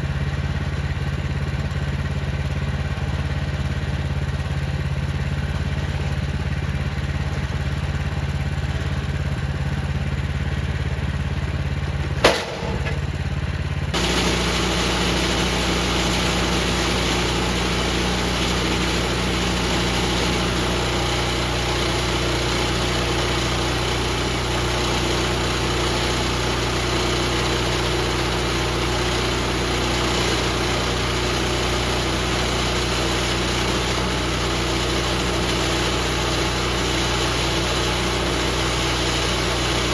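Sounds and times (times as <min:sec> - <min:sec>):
sharp knock: 0:12.2 - 0:13.0
band sawmill sawing log: 0:14.0 - 0:39.9.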